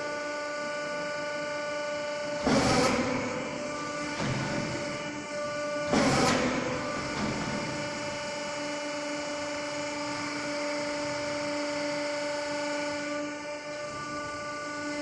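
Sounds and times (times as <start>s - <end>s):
garbage truck machinery whine: 0.0s - 15.0s.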